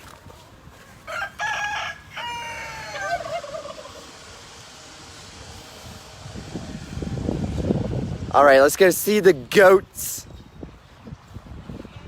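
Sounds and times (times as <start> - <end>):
rooster crowing: 1.0 - 4.0.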